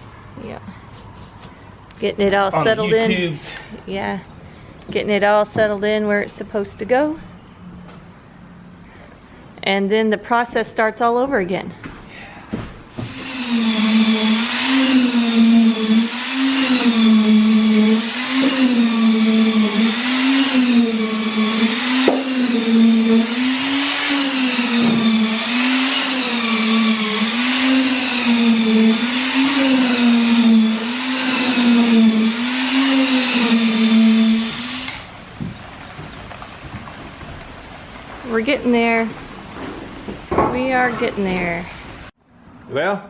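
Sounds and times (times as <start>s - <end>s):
concrete mixer running: 13.0s - 38.5s.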